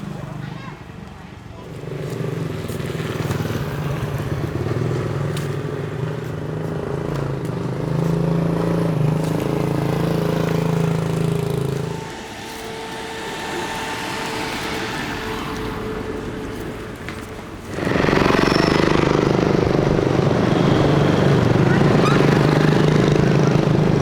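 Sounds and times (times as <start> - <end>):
engine running: 1.7 - 24.0.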